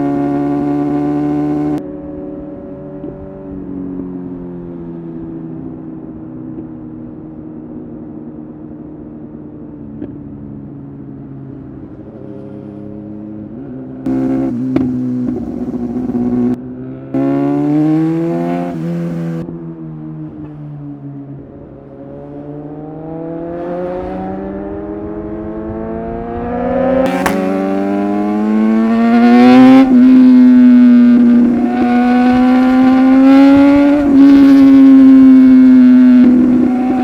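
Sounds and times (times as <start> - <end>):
motorcycle engine revving: 0.0 - 1.8, 14.1 - 19.4, 23.0 - 37.0.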